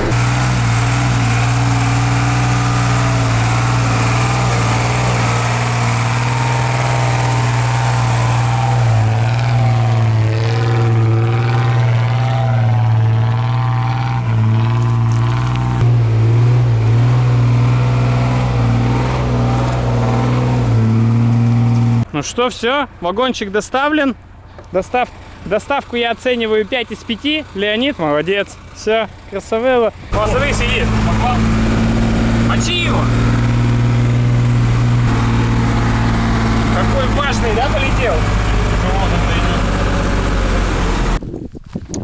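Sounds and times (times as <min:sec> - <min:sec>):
diesel truck engine under load: 0:00.0 - 0:41.2.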